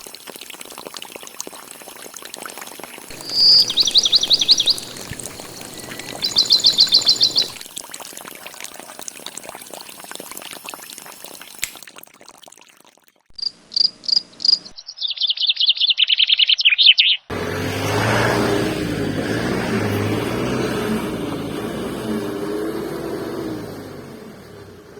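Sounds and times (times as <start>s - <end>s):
bird-like chirping trills: 3.1s - 7.6s, 13.4s - 17.3s.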